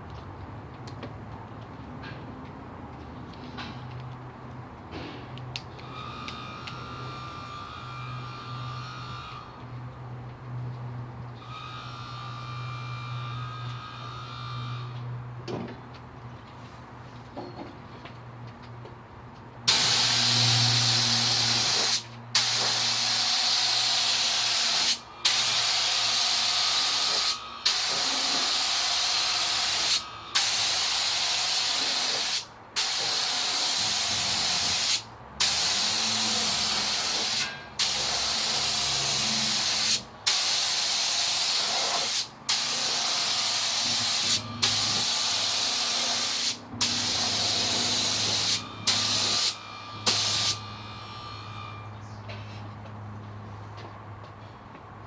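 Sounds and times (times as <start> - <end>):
paint spray gun hissing: 19.7 - 51.6.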